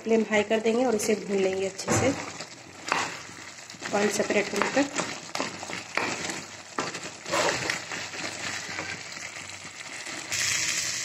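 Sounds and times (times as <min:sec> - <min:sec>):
curry sizzling in a pan: 0:00.0 - 0:11.0
wooden spatula scraping a pan: 0:01.8 - 0:10.3.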